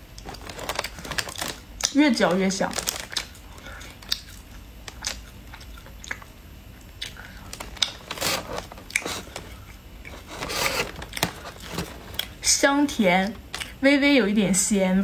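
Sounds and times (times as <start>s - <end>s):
chewing dried fish: 0.0s - 2.0s, 2.7s - 12.4s.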